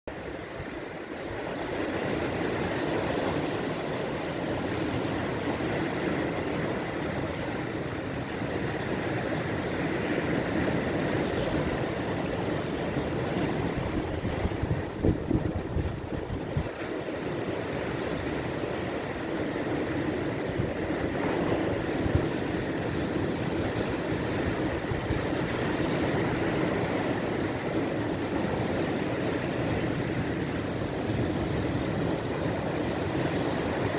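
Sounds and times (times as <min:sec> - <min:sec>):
waves washing: 0:00.1 - 0:33.9
wind on microphone: 0:08.3 - 0:33.9.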